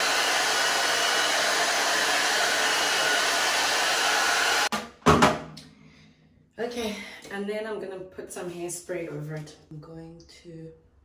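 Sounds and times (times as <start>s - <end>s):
hair dryer blowing: 0.0s - 4.7s.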